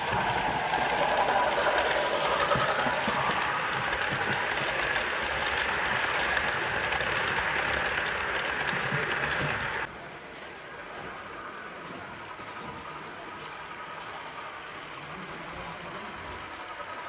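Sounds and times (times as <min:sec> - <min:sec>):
model train motor whirring: 0:00.0 - 0:09.9
wheels rumbling over rails: 0:00.0 - 0:17.0.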